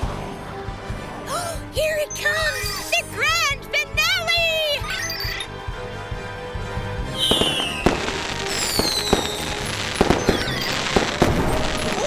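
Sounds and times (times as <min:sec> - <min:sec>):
background music: 0:00.0 - 0:12.0
firework bangs and crackling: 0:06.0 - 0:12.0
whistling rockets falling in pitch: 0:07.1 - 0:12.0.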